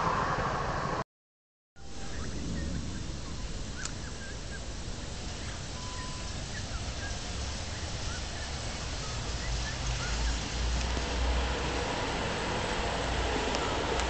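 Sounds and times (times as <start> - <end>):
low rumble: 0.0 - 1.0, 1.8 - 8.0
outdoor hiss: 1.8 - 14.0
small birds chirping: 1.9 - 11.0.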